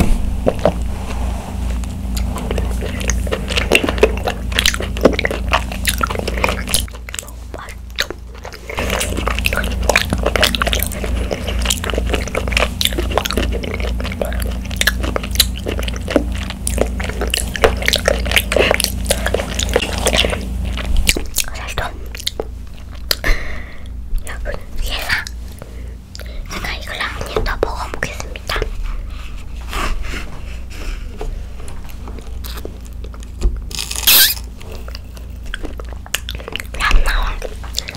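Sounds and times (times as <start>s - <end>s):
wet squishy chewing: 1.6s - 23.3s, 31.2s - 37.9s.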